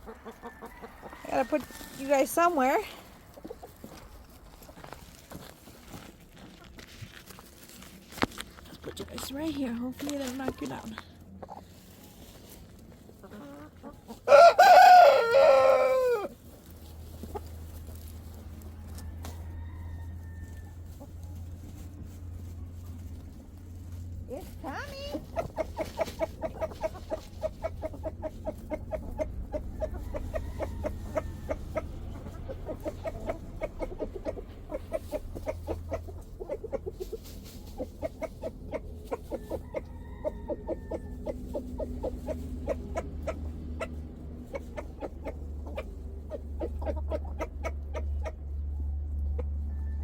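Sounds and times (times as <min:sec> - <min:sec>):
chickens clucking: 0:00.0 - 0:07.8, 0:08.4 - 0:50.0
steady low rumble: 0:16.4 - 0:49.7.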